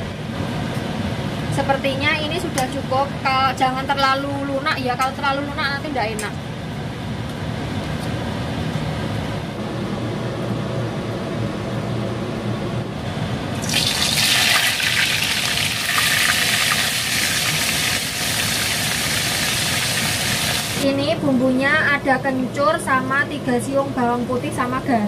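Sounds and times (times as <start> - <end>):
food sizzling in hot oil: 13.6 - 20.8
water boiling in pot: 13.6 - 20.8.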